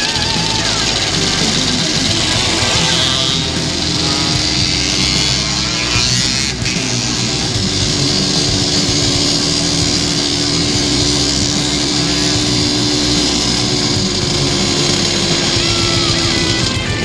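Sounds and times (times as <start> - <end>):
strong hiss: 0.0 - 6.7
two-stroke motorcycle engine: 0.0 - 17.0.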